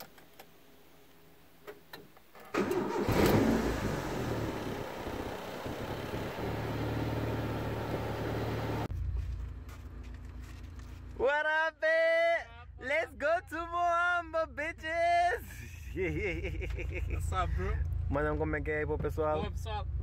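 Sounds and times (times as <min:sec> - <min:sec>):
car engine starting and idling: 0:02.4 - 0:10.2.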